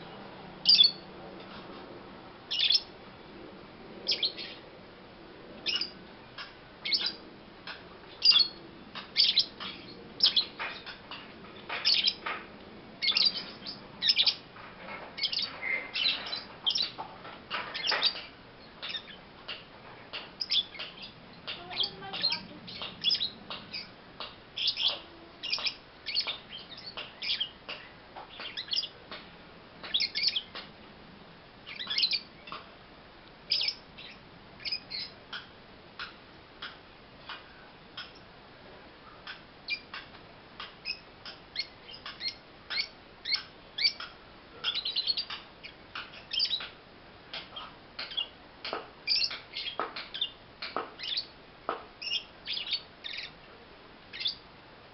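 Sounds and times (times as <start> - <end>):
lovebird chirping: 0.0 - 1.1, 2.5 - 2.9, 4.0 - 4.6, 5.6 - 7.2, 8.1 - 12.3, 13.0 - 14.4, 15.2 - 17.0, 17.7 - 19.2, 20.4 - 24.0, 24.6 - 29.0, 29.8 - 30.6, 31.6 - 32.6, 33.5 - 35.5, 39.1 - 40.0, 40.8 - 46.7, 47.6 - 48.4, 49.0 - 50.4, 51.0 - 51.3, 52.0 - 53.4, 54.1 - 54.4.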